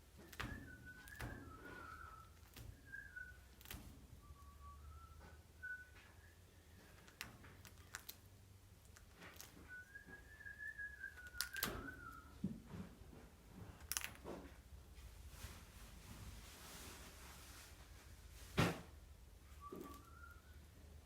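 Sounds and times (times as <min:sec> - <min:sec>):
faint whistled tone: 0:00.2 - 0:07.2, 0:09.3 - 0:12.4, 0:19.4 - 0:21.0.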